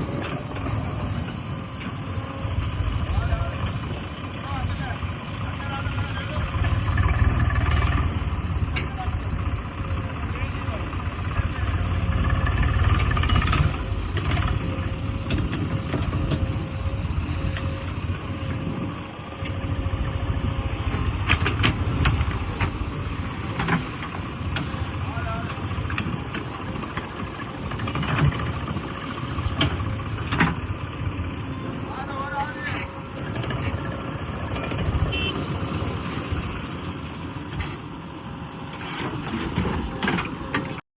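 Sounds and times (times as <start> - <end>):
faint whine: 0.0 - 7.0
heavy diesel engine running: 0.0 - 40.8.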